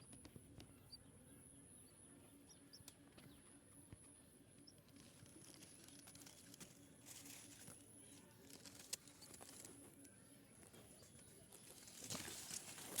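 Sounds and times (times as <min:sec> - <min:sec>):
small ticks: 0:03.9 - 0:13.0.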